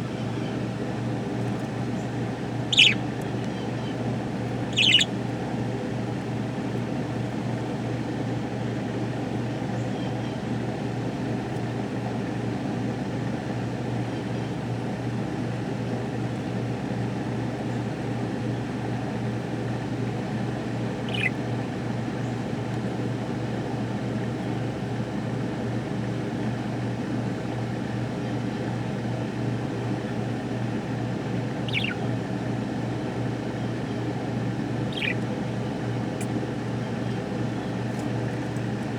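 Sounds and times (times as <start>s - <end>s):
steady low hum: 0.0s - 13.6s, 18.5s - 38.9s
budgerigar chirping: 2.7s - 3.1s, 4.6s - 5.2s, 21.0s - 21.4s, 31.6s - 32.1s, 34.8s - 35.3s.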